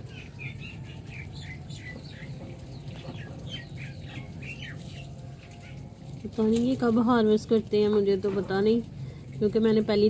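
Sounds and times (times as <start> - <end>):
small birds chirping: 0.0 - 6.8.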